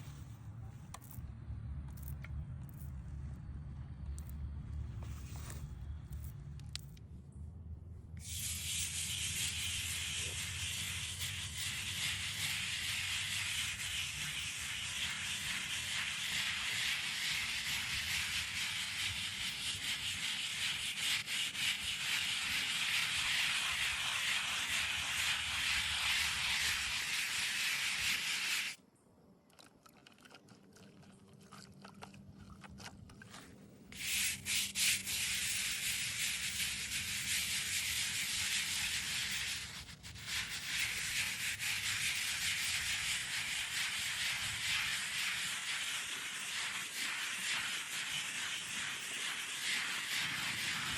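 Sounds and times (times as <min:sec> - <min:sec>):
abrasive rubbing on stone: 0:08.2 - 0:28.8, 0:33.9 - 0:50.9.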